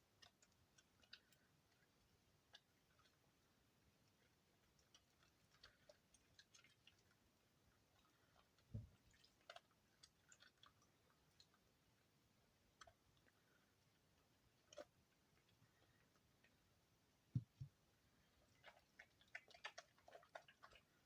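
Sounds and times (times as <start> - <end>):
soft low thump: 8.7 - 9.0, 17.3 - 17.7.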